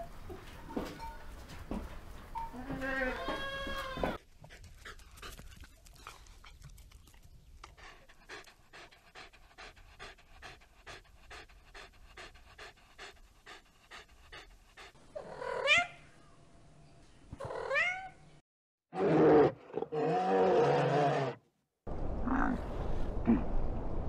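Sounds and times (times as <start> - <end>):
dog panting: 4.2 - 15.0.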